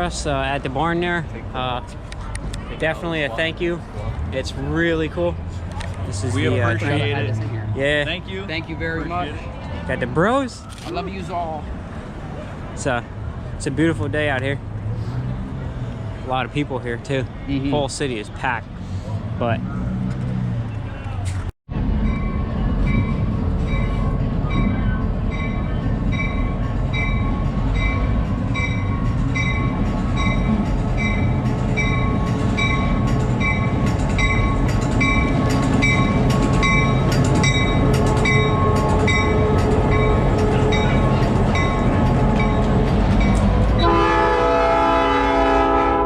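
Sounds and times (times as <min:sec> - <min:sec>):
diesel locomotive rumbling: 0:00.0 - 0:46.0
locomotive bell ringing: 0:22.0 - 0:45.6
multi-note air horn: 0:43.8 - 0:46.0.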